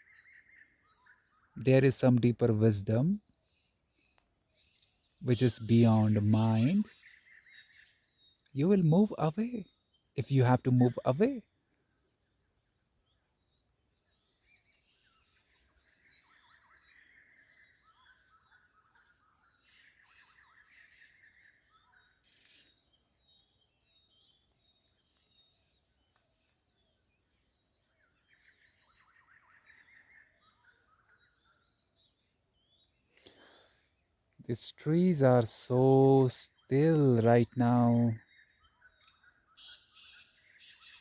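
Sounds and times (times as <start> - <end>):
faint bird chirping: 0.0 - 41.0.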